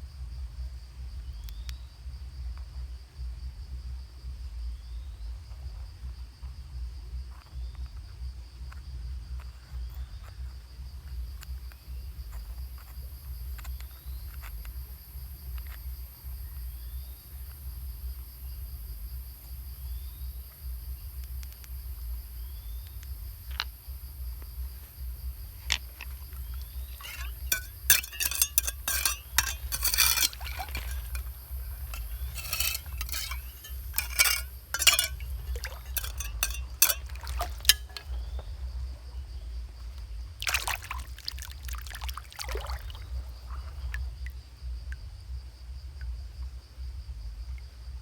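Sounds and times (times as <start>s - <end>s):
insects trilling: 7.4s - 45.4s
hard objects clinking: 26.8s - 38.2s.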